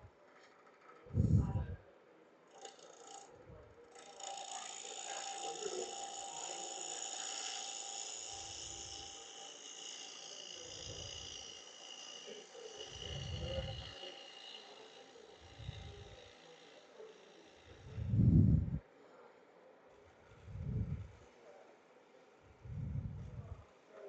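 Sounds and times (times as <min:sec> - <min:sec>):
wood lathe whirring: 0:02.5 - 0:18.8.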